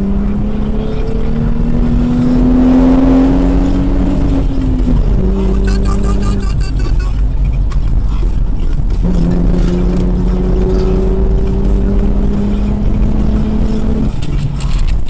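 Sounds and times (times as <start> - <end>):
car engine accelerating: 0.0 - 15.0
road rumble inside car: 0.0 - 15.0.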